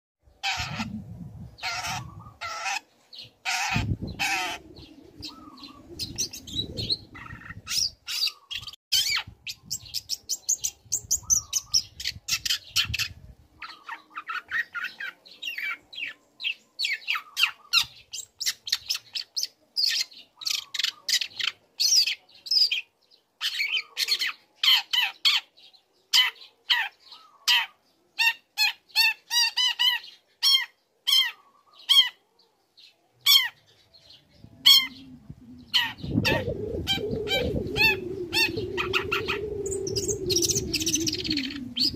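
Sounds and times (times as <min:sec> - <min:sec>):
low rumble: 0:34.4 - 0:41.9.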